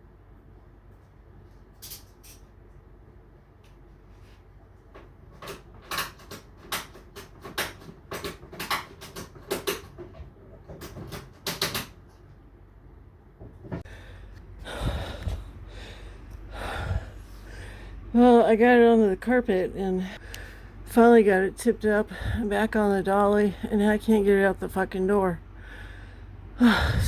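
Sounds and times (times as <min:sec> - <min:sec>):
sharp irregular clicks and knocks: 0:04.9 - 0:12.2.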